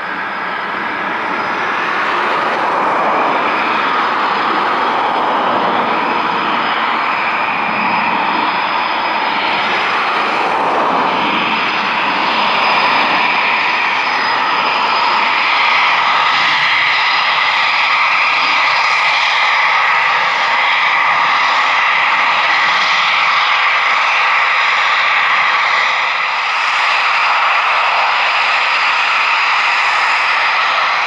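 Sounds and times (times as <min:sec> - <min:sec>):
jet engines running loud: 0:00.0 - 0:31.0.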